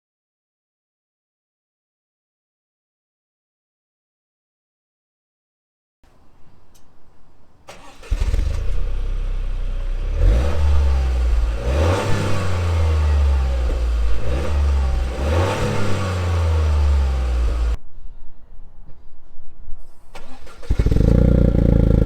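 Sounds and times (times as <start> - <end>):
car engine starting and revving: 7.7 - 17.8, 20.2 - 22.0.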